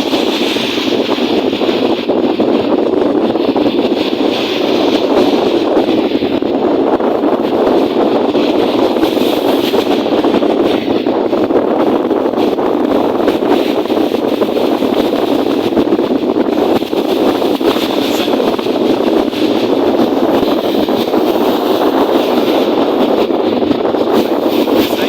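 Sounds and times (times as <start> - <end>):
strong wind rushing: 0.0 - 25.0
wind buffeting microphone: 0.0 - 25.0
lake waves: 16.4 - 23.0, 24.0 - 25.0.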